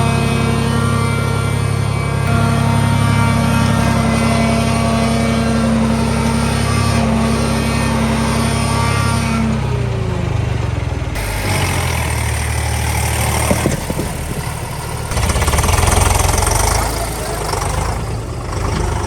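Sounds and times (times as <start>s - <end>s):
tractor diesel engine running: 0.0s - 19.0s
sharp knocks: 11.2s - 17.9s.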